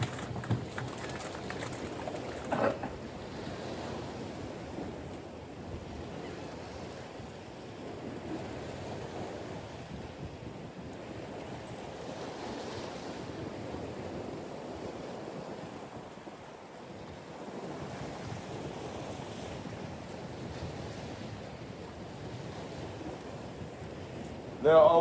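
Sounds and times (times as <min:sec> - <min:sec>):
waves washing: 0:00.0 - 0:05.0
wind rushing over microphone: 0:00.0 - 0:25.0.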